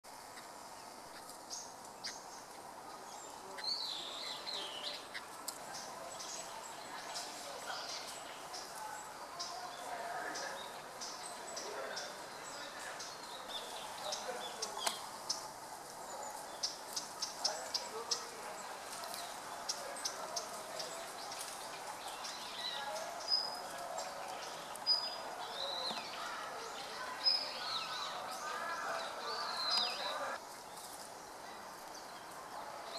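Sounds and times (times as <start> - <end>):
bird chips and whistled calls: 19.0 - 30.2.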